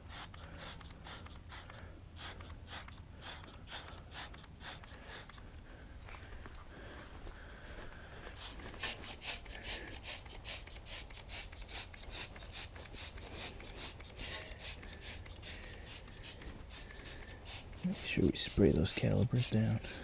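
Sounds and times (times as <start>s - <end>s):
rhythmic swishing strokes: 8.4s - 20.0s.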